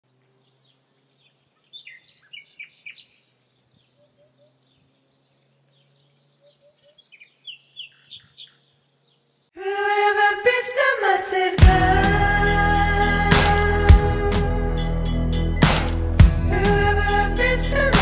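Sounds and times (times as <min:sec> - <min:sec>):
birds chirping: 0:00.1 - 0:09.6.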